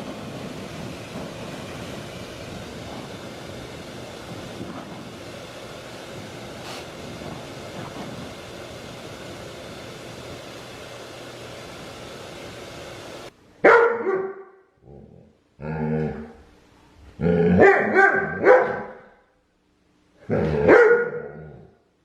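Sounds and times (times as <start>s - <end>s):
steady rushing noise: 0.0s - 13.4s
dog barking: 13.6s - 14.6s, 17.6s - 19.1s, 20.4s - 21.6s.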